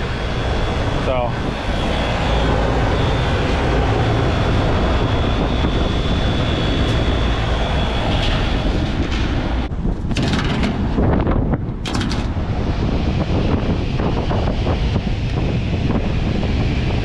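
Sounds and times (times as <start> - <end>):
faint steady whine: 0.0 - 9.8
air conditioner fan and compressor roar: 0.0 - 17.0.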